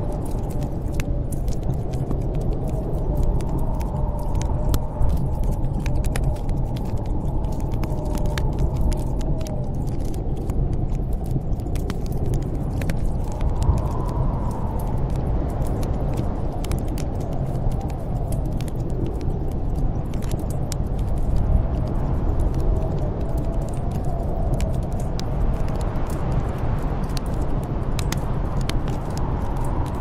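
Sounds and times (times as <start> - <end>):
wind blowing with faint whistle: 0.0 - 30.0
wood fire crackling and popping: 0.0 - 30.0.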